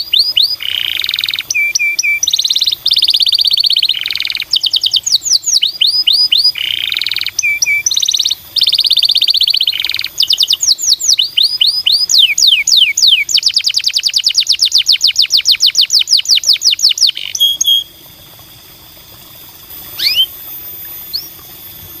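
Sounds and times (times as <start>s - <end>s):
canary singing trills: 0.0s - 18.0s, 19.8s - 21.4s
canary short calls: 19.9s - 20.3s.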